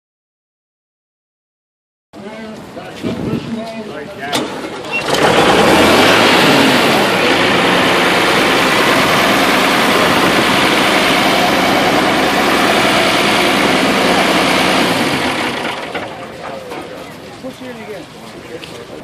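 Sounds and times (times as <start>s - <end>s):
tractor engine running: 4.2s - 19.0s.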